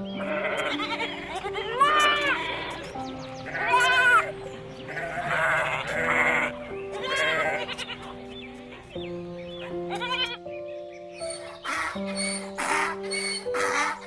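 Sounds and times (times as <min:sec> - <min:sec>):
background music with held notes: 0:00.0 - 0:14.0
quavering animal bleats: 0:00.1 - 0:08.2, 0:09.8 - 0:10.4.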